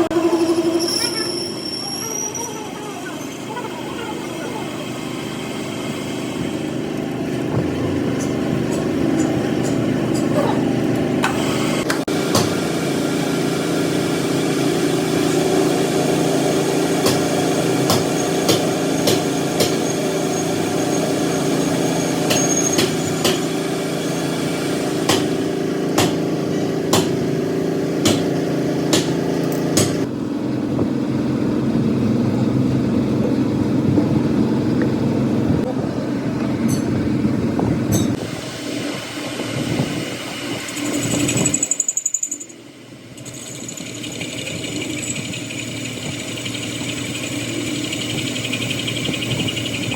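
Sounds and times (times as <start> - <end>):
workshop machinery humming: 0.0 - 49.9
sharp knocks: 28.0 - 28.3
quieter steady machine sound: 40.2 - 49.9.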